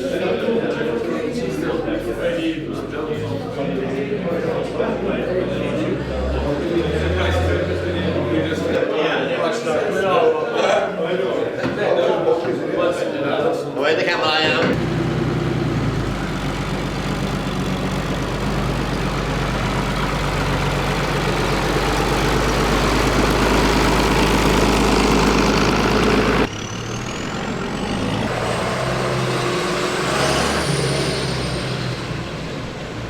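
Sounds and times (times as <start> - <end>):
tractor engines running: 14.6 - 33.0.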